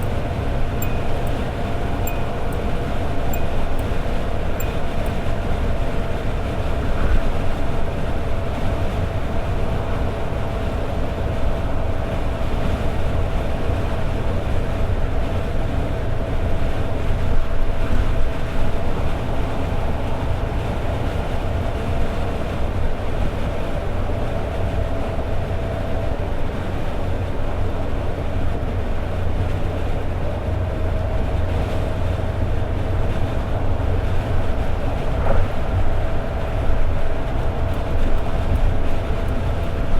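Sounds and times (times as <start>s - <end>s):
thin steady tone: 0.0s - 5.7s
car engine drone: 0.0s - 39.9s
road and tyre noise: 0.0s - 39.9s.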